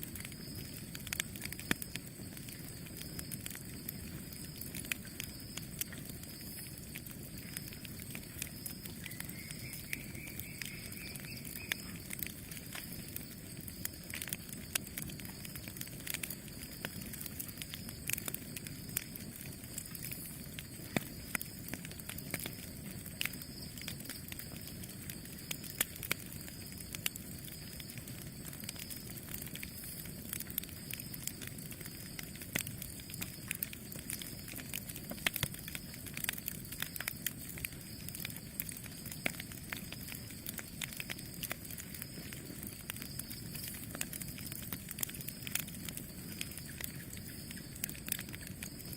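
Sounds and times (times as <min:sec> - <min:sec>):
campfire burning rush: 0:00.0 - 0:48.9
fire pops and snaps: 0:00.0 - 0:48.9
faint high whistling tone: 0:09.0 - 0:12.0.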